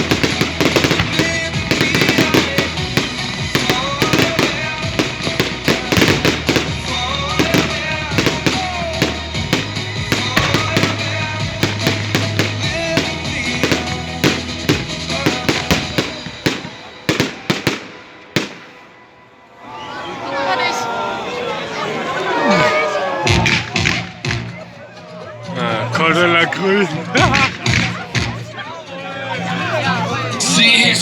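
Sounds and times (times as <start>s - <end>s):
pop music: 0.0s - 16.4s, 23.3s - 31.0s
fireworks bangs and crackles: 0.0s - 18.9s, 23.3s - 24.5s.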